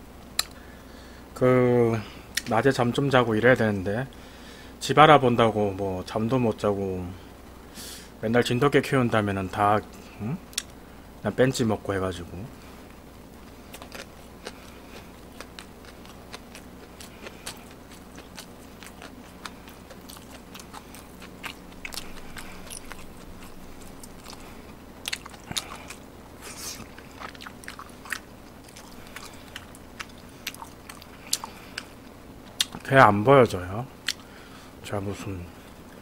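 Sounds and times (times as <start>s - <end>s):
person chewing food: 13.4s - 32.8s, 34.0s - 34.3s.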